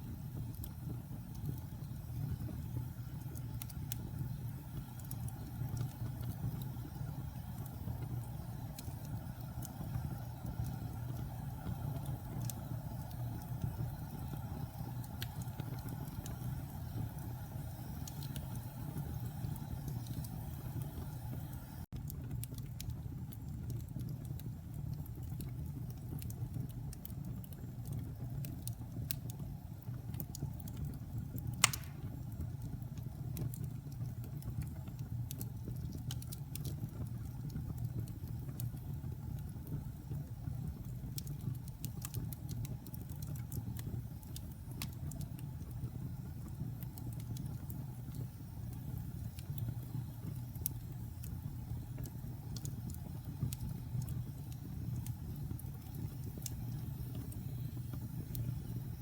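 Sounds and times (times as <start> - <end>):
fire crackling in a fireplace: 0.0 - 59.0
loud fire pop: 31.6 - 32.2.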